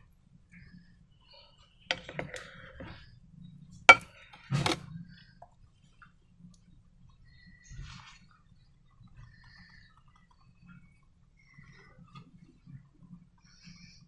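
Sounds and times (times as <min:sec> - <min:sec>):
containers and tools clicking: 0:03.9 - 0:04.8.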